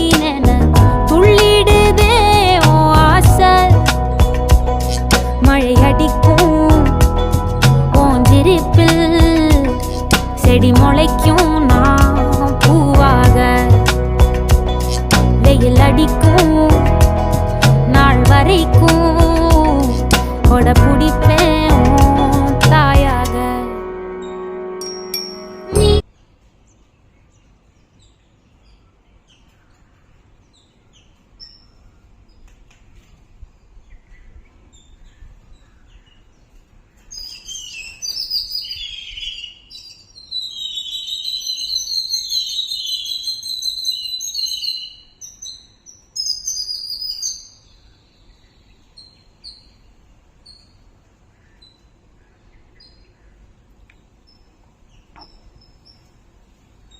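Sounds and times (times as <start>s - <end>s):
birds chirping and singing: 33.6s - 56.2s.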